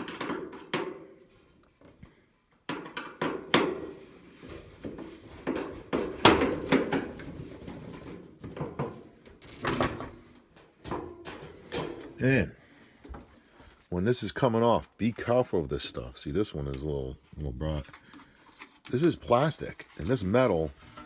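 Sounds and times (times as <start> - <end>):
clothes dryer parts knocking and rattling: 0.0 - 12.4.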